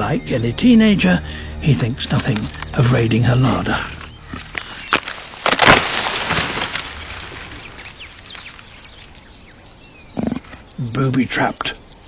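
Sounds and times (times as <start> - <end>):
birds chirping: 0.0 - 12.0
high ticking bird calls: 0.0 - 12.0
loud rustling scraping burst: 2.4 - 8.8.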